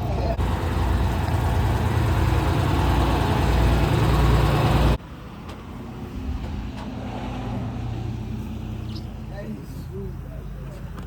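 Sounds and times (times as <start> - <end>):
fire truck engine rumbling: 0.0 - 8.7.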